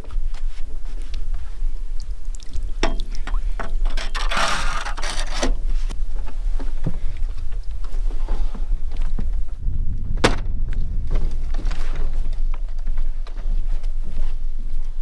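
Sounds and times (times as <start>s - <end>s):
water sloshing: 0.0s - 5.9s
low rumble: 5.5s - 15.0s.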